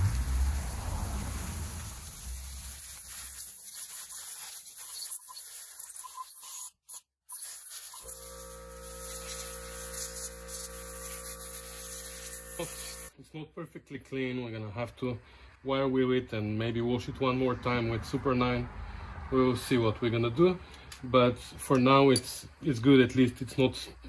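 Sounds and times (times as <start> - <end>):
hose water spraying and splashing: 0.0 - 13.2
scrubbing and scraping on metal: 2.9 - 8.2
steady hum: 8.0 - 13.1.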